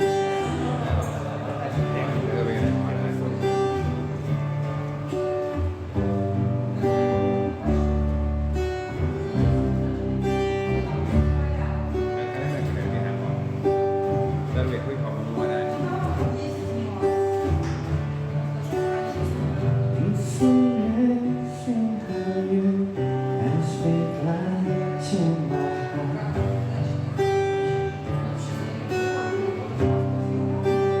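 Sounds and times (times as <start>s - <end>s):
bass line: 0.0s - 18.4s
strummed acoustic guitar: 0.0s - 31.0s.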